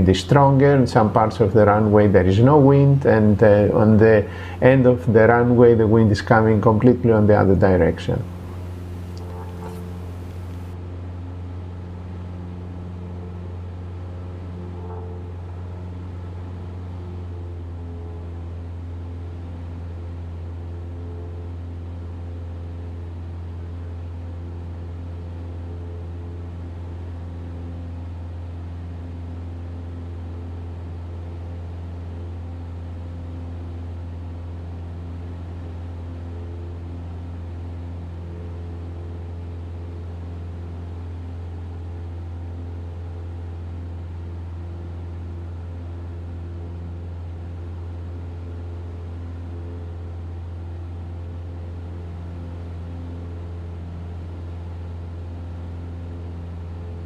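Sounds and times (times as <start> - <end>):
airplane engine drone: 0.0 - 57.0
airflow hiss: 8.0 - 10.8.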